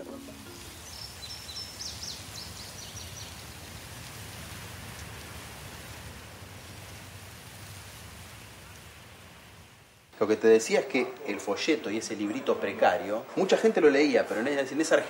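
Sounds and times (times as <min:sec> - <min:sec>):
small birds chirping: 0:00.0 - 0:04.0
outdoor background hiss: 0:00.0 - 0:15.0.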